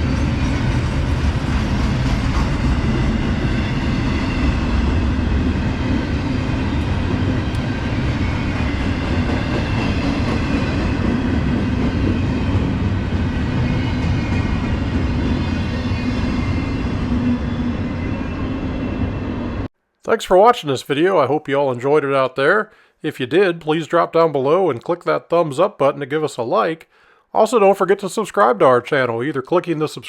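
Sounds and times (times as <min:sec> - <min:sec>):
freight train wheels rumbling on rails: 0:00.0 - 0:19.7.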